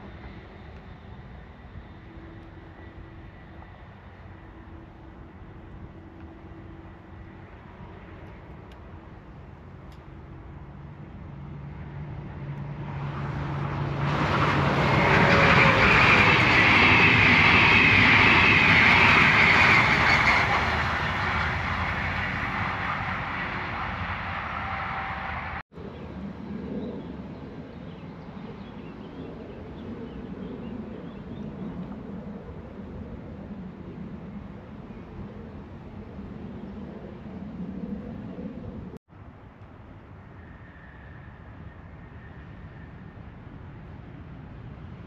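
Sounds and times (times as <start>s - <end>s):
electric train passing: 0.0s - 25.6s.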